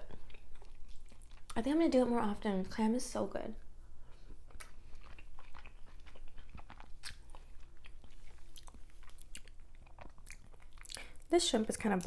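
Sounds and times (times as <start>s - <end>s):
person chewing: 0.0s - 1.6s, 4.0s - 11.3s.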